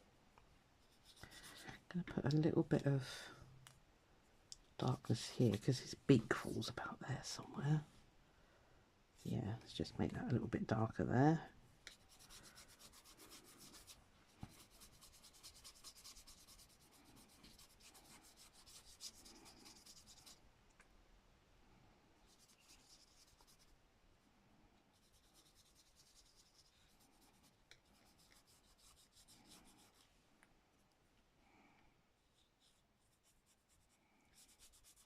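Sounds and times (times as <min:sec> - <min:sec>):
pencil scratching on paper: 0:00.9 - 0:01.6, 0:11.9 - 0:20.4, 0:22.3 - 0:23.7, 0:24.9 - 0:30.0, 0:32.3 - 0:35.0.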